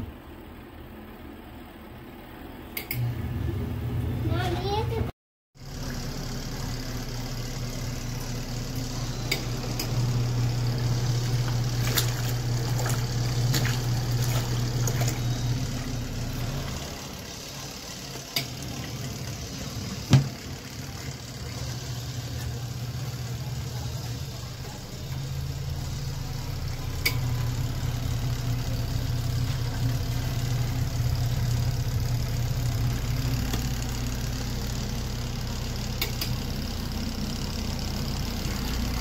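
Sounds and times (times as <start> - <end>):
washing machine motor hum: 0.0 - 39.0
water churning in tub: 10.2 - 31.0.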